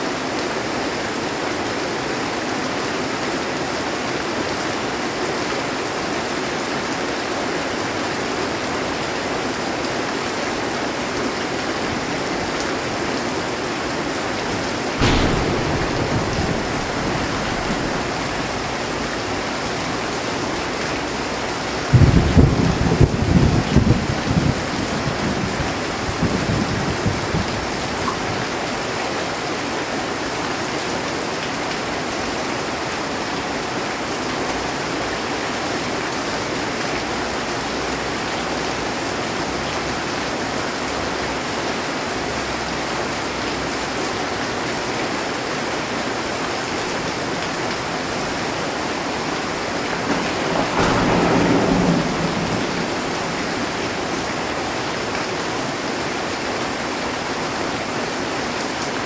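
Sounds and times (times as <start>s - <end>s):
heavy rain on a metal roof: 0.0s - 59.0s
thunder rumbling: 13.4s - 28.4s, 46.9s - 56.9s.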